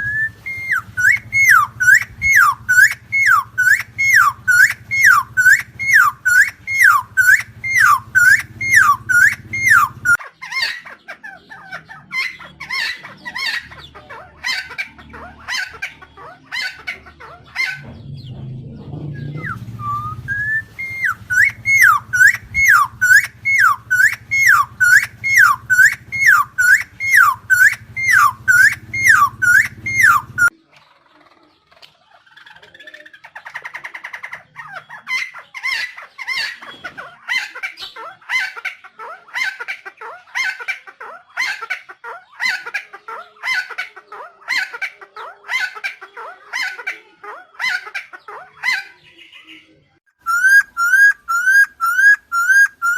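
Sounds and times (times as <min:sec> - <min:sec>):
bird calling repeated notes: 0:00.0 - 0:10.4, 0:19.1 - 0:30.5, 0:50.2 - 0:52.9.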